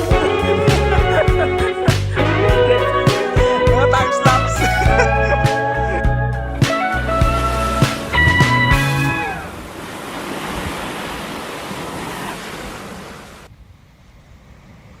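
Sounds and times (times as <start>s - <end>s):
ocean surf washing on beach: 9.0s - 13.5s.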